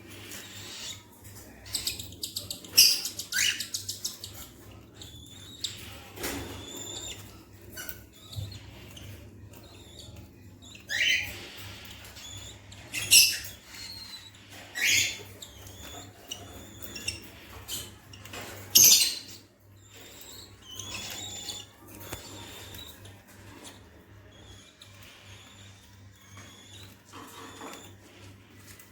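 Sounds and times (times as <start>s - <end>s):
budgerigars chirping: 0.1s - 28.8s.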